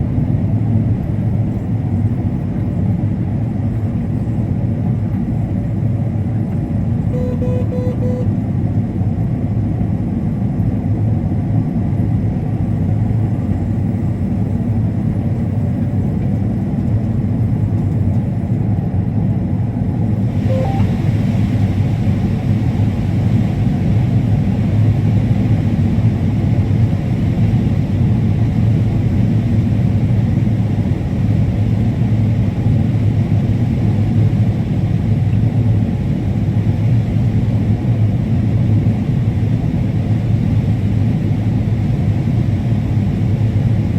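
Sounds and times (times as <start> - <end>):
combine harvester rumbling: 0.0 - 43.9.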